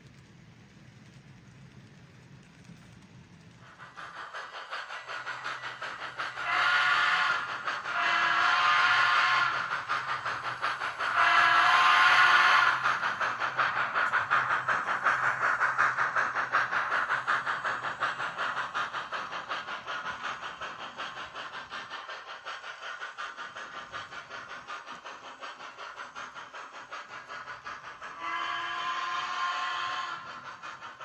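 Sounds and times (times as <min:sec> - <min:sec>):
steam locomotive chuffs: 0:00.0 - 0:31.0
steam whistle: 0:06.4 - 0:09.6, 0:11.2 - 0:12.8, 0:28.2 - 0:30.3.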